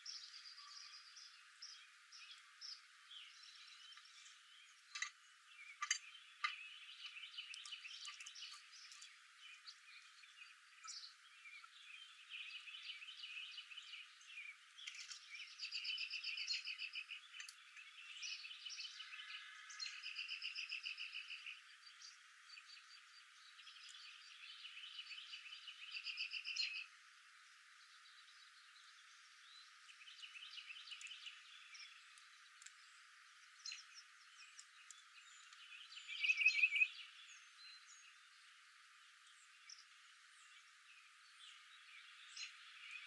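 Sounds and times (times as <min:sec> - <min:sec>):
small animals chirping and trilling: 0:00.0 - 0:19.2.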